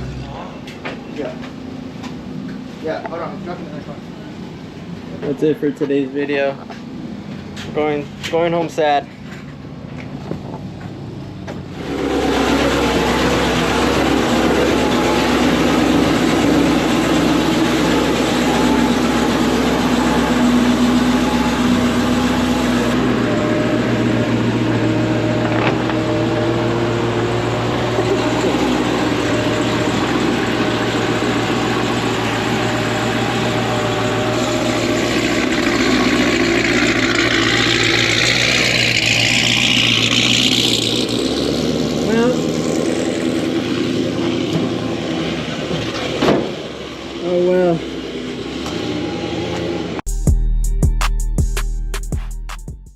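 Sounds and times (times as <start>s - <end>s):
car engine running: 0.0s - 50.1s
whine rising in pitch: 11.8s - 44.5s.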